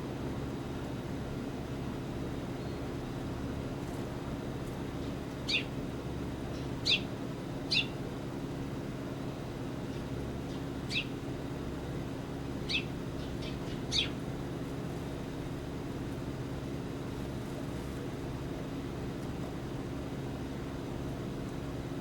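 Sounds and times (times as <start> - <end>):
steady low hum: 0.0 - 22.0
small bird sharp calls: 5.4 - 5.8, 6.5 - 7.1, 7.7 - 8.0, 9.9 - 11.2, 12.6 - 14.2.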